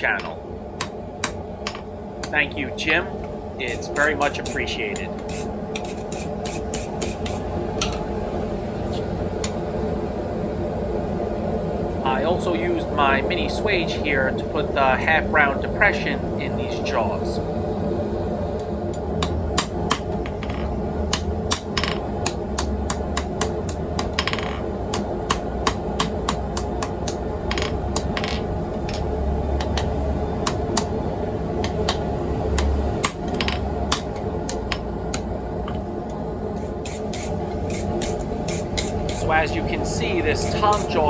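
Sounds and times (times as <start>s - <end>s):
hammer striking hot steel: 0.0s - 2.4s, 3.6s - 8.0s, 19.2s - 29.1s, 32.6s - 35.2s, 36.6s - 41.0s
steady low hum: 0.0s - 41.0s.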